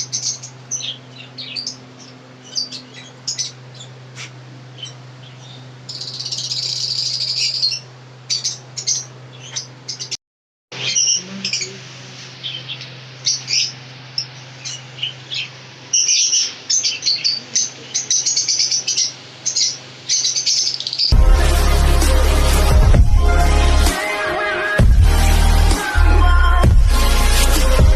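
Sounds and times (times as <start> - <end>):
pet birds chirping: 0.0 - 10.2, 10.8 - 21.2
steady low hum: 0.0 - 24.0.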